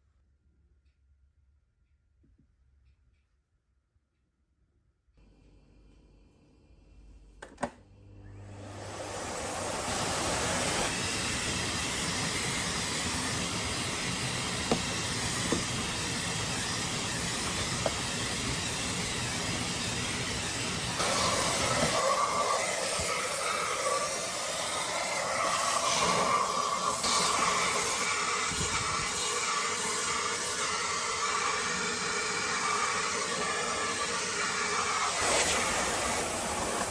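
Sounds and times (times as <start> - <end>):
vacuum switch click: 7.4 - 7.8
vacuum cleaner running: 7.4 - 36.9.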